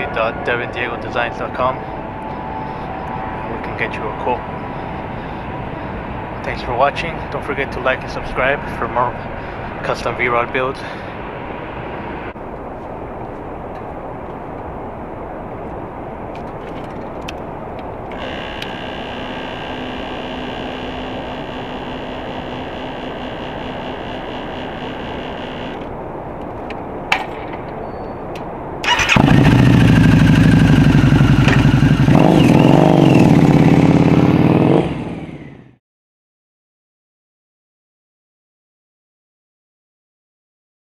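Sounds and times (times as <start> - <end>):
steady rushing background: 0.0 - 6.9
motorcycle engine running: 18.2 - 25.8, 28.9 - 35.8.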